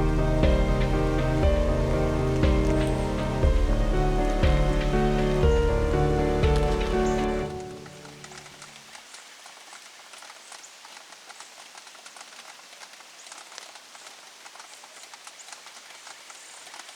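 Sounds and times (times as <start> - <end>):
background music: 0.0 - 8.7
rain pattering: 0.0 - 16.9.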